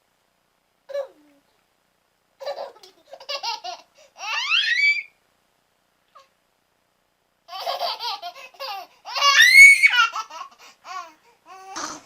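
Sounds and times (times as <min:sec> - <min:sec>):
young child laughing and squealing: 0:04.2 - 0:05.1, 0:07.5 - 0:10.5.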